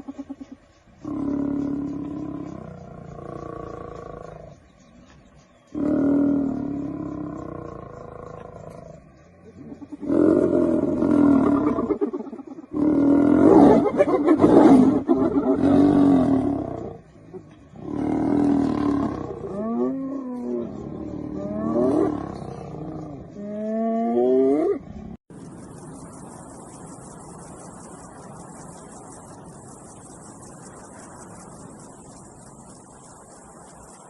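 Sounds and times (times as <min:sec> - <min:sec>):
lions growling and roaring: 0:00.1 - 0:05.0, 0:05.6 - 0:25.2.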